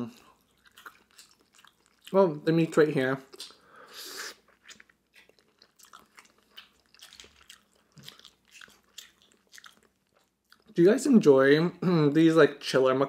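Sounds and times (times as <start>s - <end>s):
wet chewing clicks: 0.1s - 2.2s, 3.3s - 3.6s, 4.2s - 10.8s.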